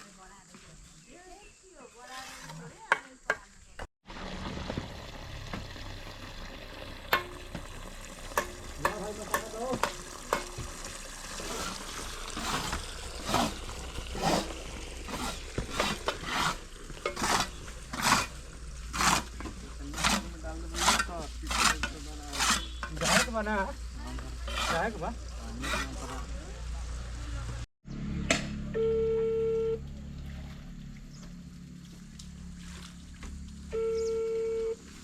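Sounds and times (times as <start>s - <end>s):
hand tool scraping gritty material: 2.0s - 2.8s, 11.4s - 26.2s.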